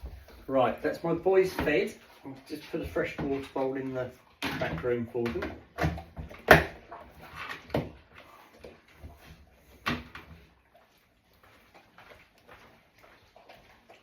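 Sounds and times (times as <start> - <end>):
household knocks and clunks: 4.4 - 8.0.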